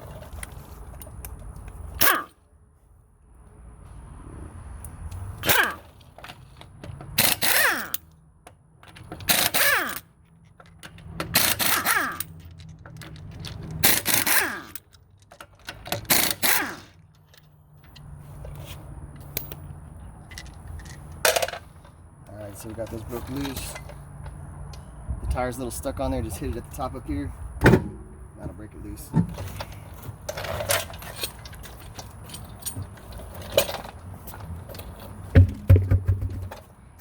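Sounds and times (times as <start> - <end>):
pneumatic impact wrench rattling: 2.0 - 2.4, 5.4 - 6.2, 7.0 - 8.1, 9.0 - 10.2, 10.8 - 17.2.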